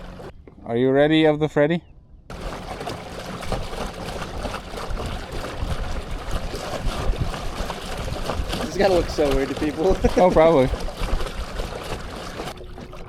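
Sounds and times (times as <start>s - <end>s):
water splashing along kayak hull: 0.0s - 0.3s, 2.3s - 13.0s.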